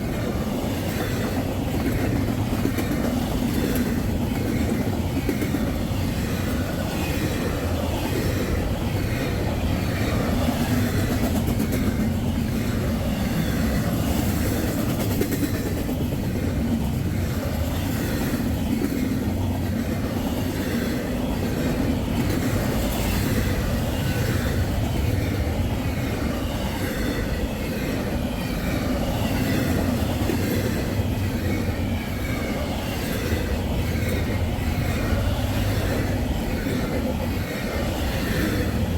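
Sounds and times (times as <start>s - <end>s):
clickety-clack of rail joints: 0.0s - 38.9s
train wheels rumbling on rails: 0.0s - 38.9s.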